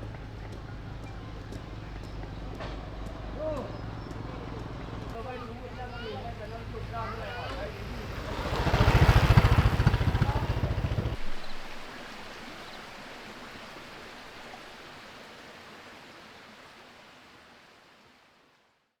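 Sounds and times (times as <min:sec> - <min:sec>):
small engine chugging: 0:00.0 - 0:14.6.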